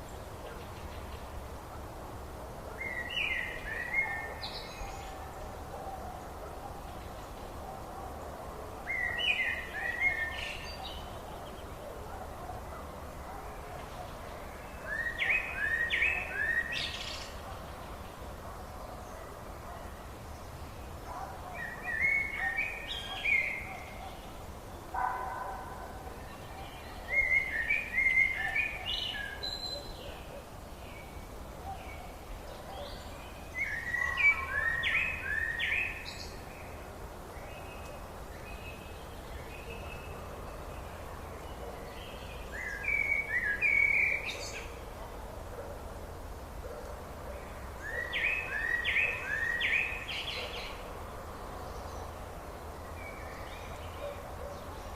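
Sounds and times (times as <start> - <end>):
background hiss: 0.0 - 54.9
songbird singing: 0.0 - 54.9.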